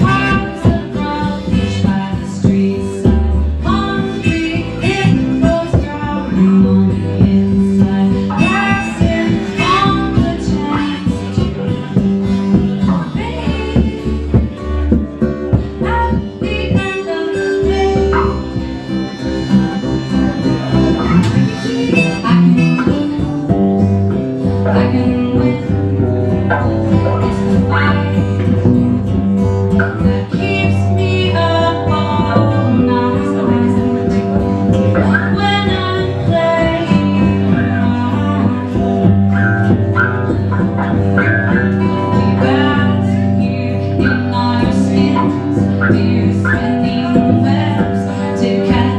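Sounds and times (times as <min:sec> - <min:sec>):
band playing a song: 0:00.0 - 0:48.9
guitar: 0:00.0 - 0:48.9
harmonica: 0:08.0 - 0:30.2.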